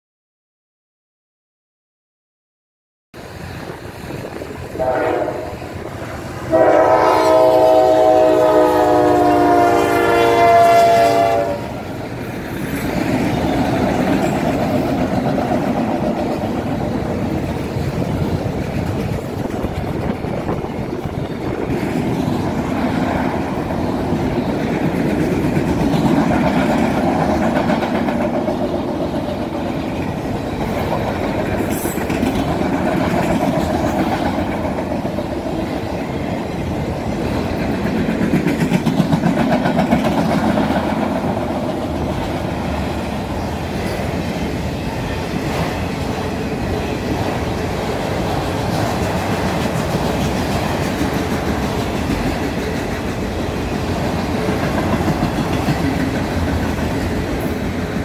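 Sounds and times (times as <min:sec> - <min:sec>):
wheels rumbling on rails: 0:03.2 - 0:58.0
locomotive horn blast: 0:04.8 - 0:05.8, 0:06.4 - 0:11.8.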